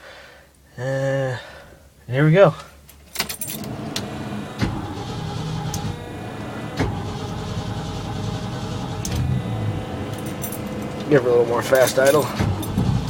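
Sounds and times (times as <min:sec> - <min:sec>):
truck engine fast idling: 0:03.6 - 0:13.0.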